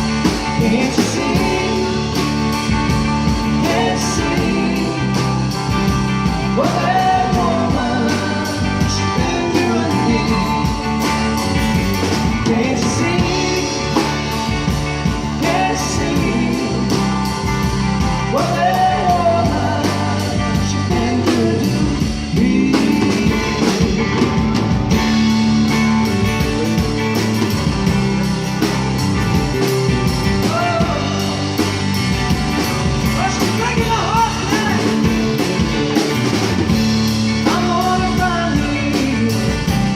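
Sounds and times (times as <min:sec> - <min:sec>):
person singing: 0:00.0 - 0:11.2, 0:12.2 - 0:24.8, 0:30.4 - 0:31.7, 0:33.0 - 0:36.3, 0:37.2 - 0:39.9
bass: 0:00.0 - 0:39.9
guitar: 0:00.0 - 0:39.9
steady drum beat: 0:00.0 - 0:39.9.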